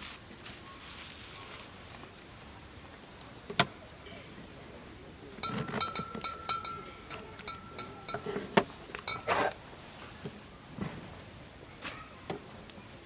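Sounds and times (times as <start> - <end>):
metal utensil clinking on pot: 5.4 - 8.4, 9.0 - 9.4.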